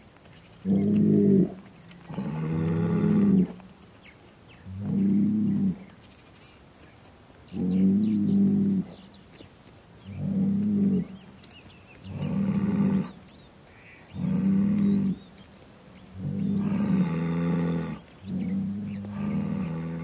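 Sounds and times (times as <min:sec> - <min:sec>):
bull bellowing: 0:00.6 - 0:03.6, 0:04.6 - 0:05.9, 0:10.1 - 0:11.2, 0:12.0 - 0:13.2, 0:14.1 - 0:15.3, 0:16.1 - 0:20.0.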